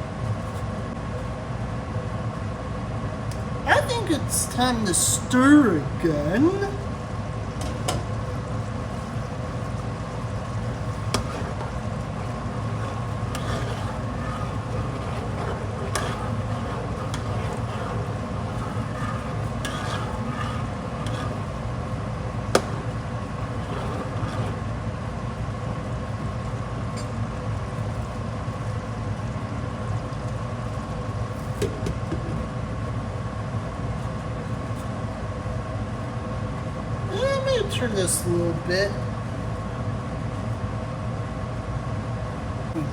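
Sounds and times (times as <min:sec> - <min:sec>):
steady tonal hum: 0:03.6 - 0:25.6.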